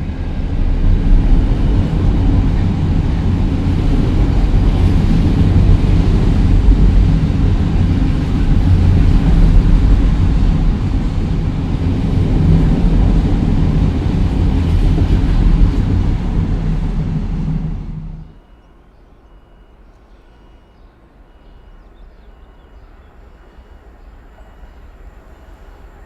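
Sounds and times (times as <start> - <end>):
diesel train engine rumble: 0.0 - 26.0
rail noise: 0.0 - 26.0.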